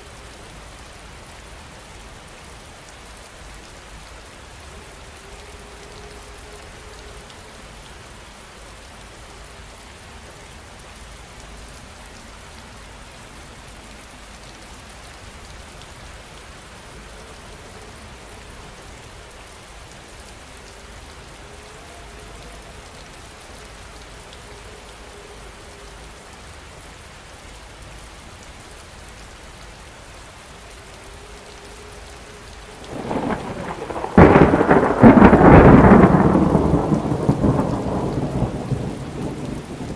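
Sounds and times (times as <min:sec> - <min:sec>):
steady rain falling: 0:00.0 - 0:39.9
loud thunderclap: 0:32.9 - 0:39.9.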